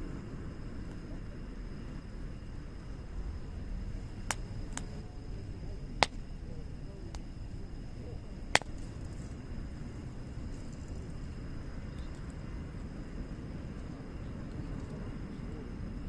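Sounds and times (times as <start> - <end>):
low rumble of flames: 0.0 - 16.0
wood fire crackling: 1.8 - 13.7
sharp pops from firewood: 4.2 - 5.0, 6.0 - 6.3, 8.5 - 9.3.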